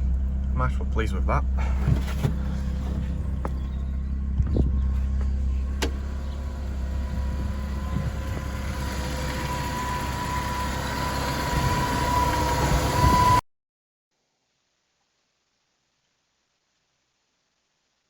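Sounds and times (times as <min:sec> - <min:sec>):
car engine idling: 0:00.0 - 0:13.3
thin steady whine: 0:05.6 - 0:13.4.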